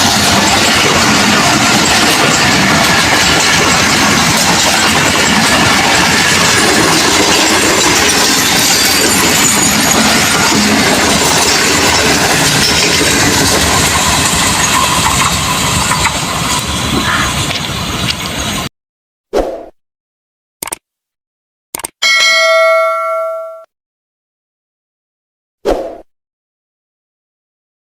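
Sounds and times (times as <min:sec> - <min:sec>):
train rumbling and rattling: 0:00.0 - 0:18.7.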